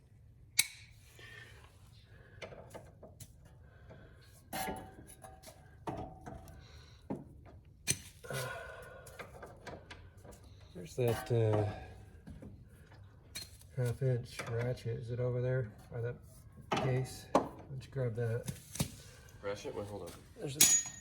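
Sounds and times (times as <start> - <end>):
metal tools clinking: 20.4 - 21.0.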